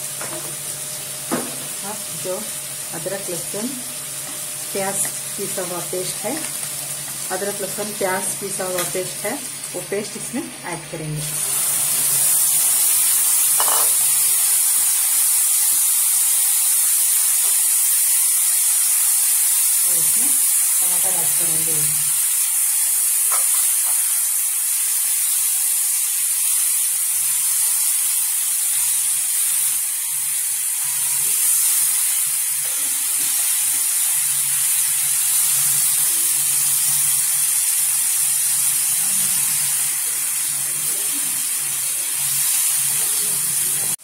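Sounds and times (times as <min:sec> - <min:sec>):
masala sizzling in a pan: 0:00.0 - 0:44.0.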